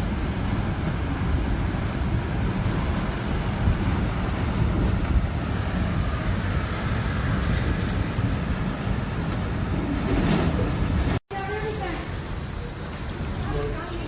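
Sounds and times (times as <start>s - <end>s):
wind buffeting on microphone: 0.0s - 11.2s
hurricane-force wind blowing: 0.0s - 14.0s.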